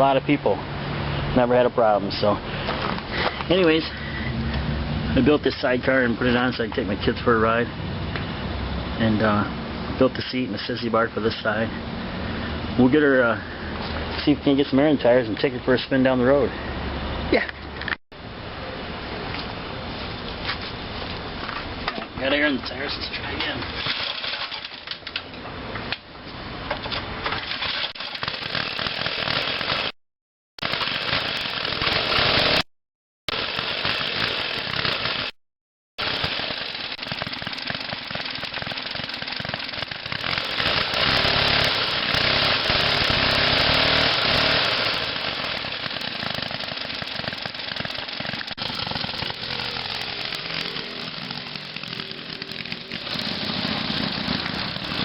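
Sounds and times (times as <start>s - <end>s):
mini bike engine buzzing: 27.4s - 29.9s, 30.6s - 32.7s, 33.3s - 35.4s, 36.0s - 55.0s.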